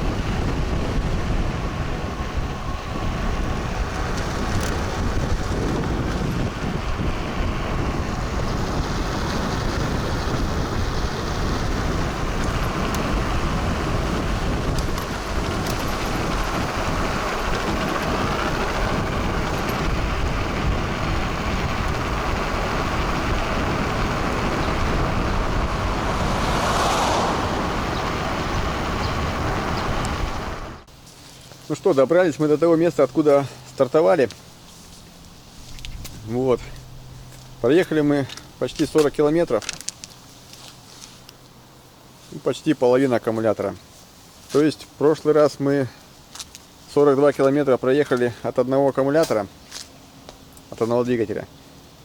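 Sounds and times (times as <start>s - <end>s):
wind rushing over microphone: 0.0s - 30.9s
bike road noise: 0.0s - 52.0s.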